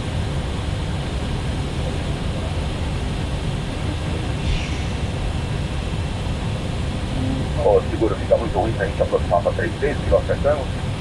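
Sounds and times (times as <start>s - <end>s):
aircraft cockpit low rumble: 0.0s - 11.0s
hiss of airflow: 4.3s - 7.8s.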